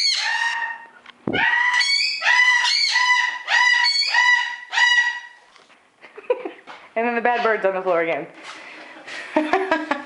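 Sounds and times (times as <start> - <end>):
parrot calling: 0.0 - 5.5.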